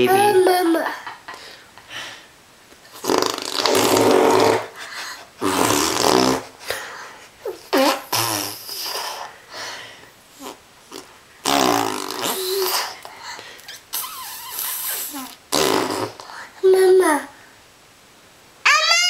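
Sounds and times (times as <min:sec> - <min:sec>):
baby blowing raspberries: 0:02.9 - 0:09.4, 0:10.4 - 0:16.5.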